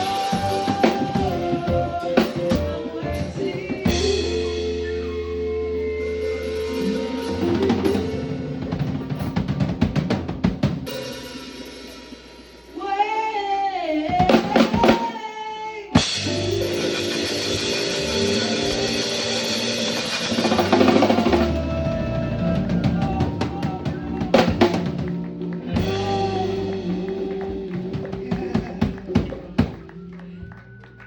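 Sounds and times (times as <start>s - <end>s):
live band playing: 0.0s - 13.4s, 14.0s - 15.3s, 15.9s - 31.0s
rapid drum hits: 7.4s - 12.0s, 16.0s - 29.9s.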